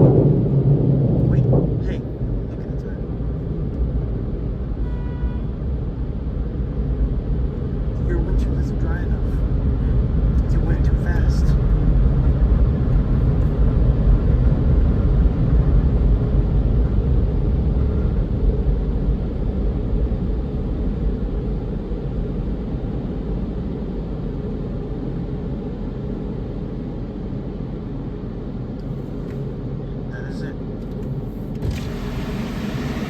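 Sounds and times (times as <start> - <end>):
air-dryer blowers rushing: 31.0 - 33.0.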